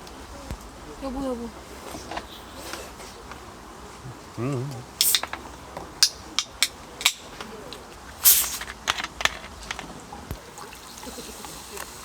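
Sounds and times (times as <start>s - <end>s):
utensils and dishes clicking: 5.0s - 7.5s.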